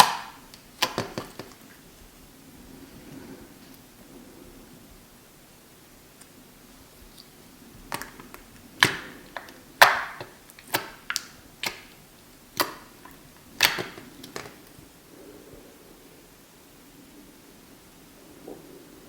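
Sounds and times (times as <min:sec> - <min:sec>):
slime popping and clicking: 0:00.0 - 0:01.6, 0:07.9 - 0:14.6.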